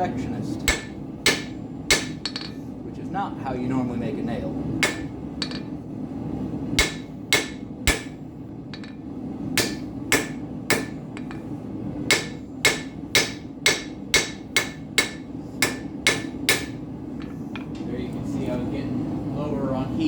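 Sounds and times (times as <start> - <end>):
hammer striking steel on anvil: 0.6 - 2.6, 4.8 - 5.8, 6.8 - 9.0, 9.6 - 17.7.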